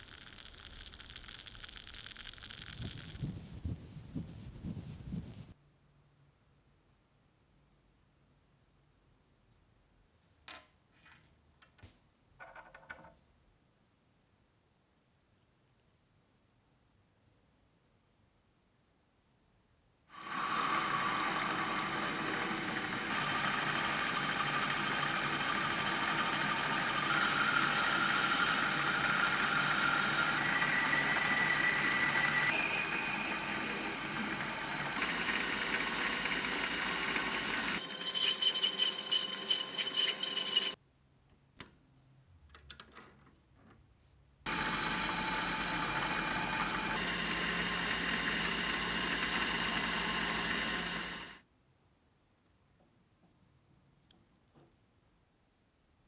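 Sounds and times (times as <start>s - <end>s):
electric power tool whining: 20.2s - 40.8s, 44.5s - 51.4s.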